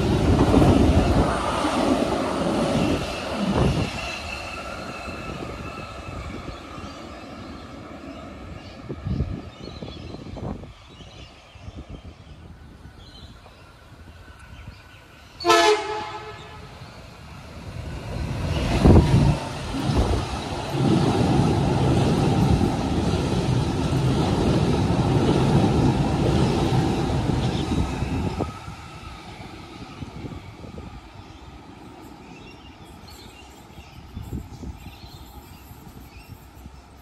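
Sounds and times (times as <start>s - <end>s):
train passing rumble: 0.0s - 37.0s
train horn blast: 15.4s - 16.7s.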